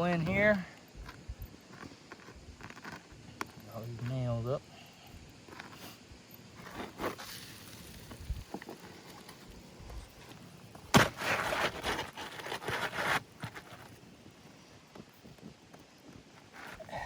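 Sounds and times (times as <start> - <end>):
rough scraping: 6.6 - 9.0, 10.9 - 14.0.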